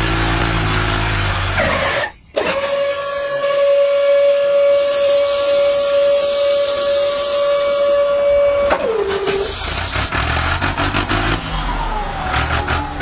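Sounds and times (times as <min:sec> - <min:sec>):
high whistle-like tone: 0:03.1 - 0:09.6
hiss: 0:04.6 - 0:11.3.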